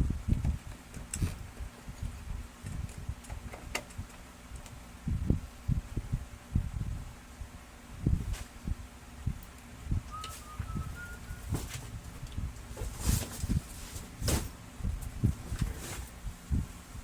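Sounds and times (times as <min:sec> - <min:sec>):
handling thumps on plastic: 0:11.4 - 0:12.0.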